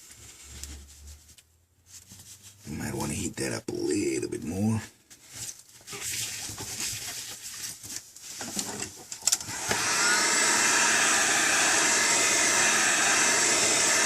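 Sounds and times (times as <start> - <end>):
rustling of handling: 4.9 - 9.2
heat gun blowing: 9.4 - 14.0.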